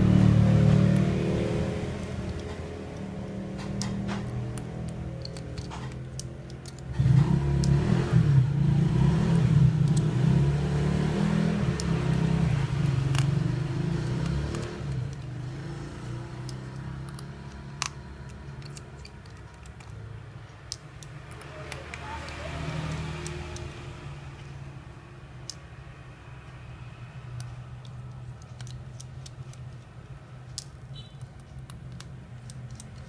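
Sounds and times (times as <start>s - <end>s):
vehicle engine running: 0.0s - 20.0s
small sharp clicks: 1.9s - 8.0s, 9.8s - 10.2s, 11.6s - 15.5s, 16.3s - 24.6s, 27.3s - 33.0s.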